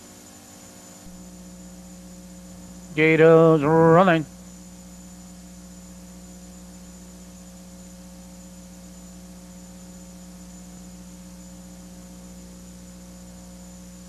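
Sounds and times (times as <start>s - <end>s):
electrical mains hum: 0.0s - 14.0s
faint high whine: 0.0s - 14.0s
tape hiss: 1.7s - 4.5s.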